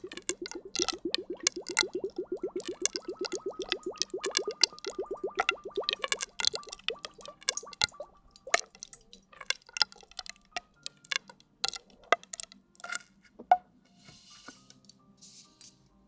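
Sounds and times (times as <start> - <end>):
wet drips and squishes: 0.0 - 11.9.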